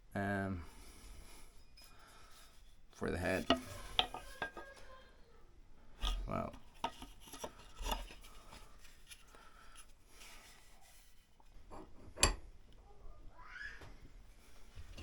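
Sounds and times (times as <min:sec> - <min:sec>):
hacksaw scraping wood: 0:03.2 - 0:04.6.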